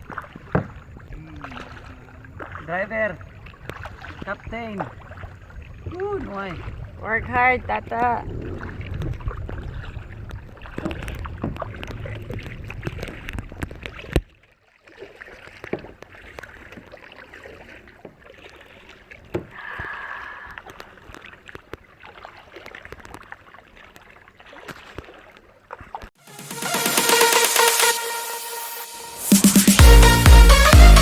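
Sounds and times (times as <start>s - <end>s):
small knocks and drips: 0.0s - 2.6s, 10.5s - 19.6s, 20.6s - 26.2s
water splashing around kayak: 0.0s - 26.4s
wind rumble on microphone: 3.2s - 14.2s.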